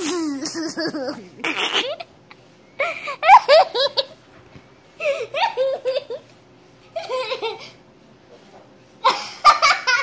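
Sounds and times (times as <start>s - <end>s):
high-pitched laughter: 0.0s - 2.1s, 2.8s - 4.2s, 5.0s - 6.3s.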